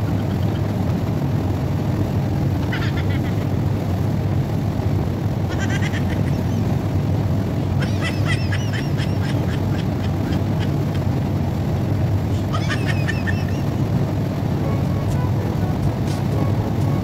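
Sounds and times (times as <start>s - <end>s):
steady low rumble: 0.0s - 17.0s
small birds chattering: 5.5s - 6.8s, 7.7s - 11.2s, 12.3s - 14.2s.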